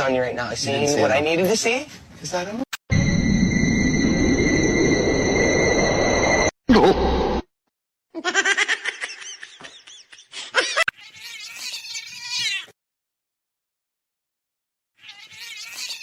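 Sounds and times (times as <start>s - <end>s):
cat meowing and yowling: 10.9s - 12.8s, 15.0s - 16.0s.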